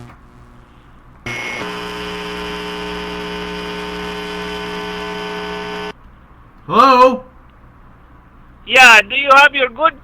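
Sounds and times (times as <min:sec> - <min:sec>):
mechanical drone over telephone: 0:00.0 - 0:06.0.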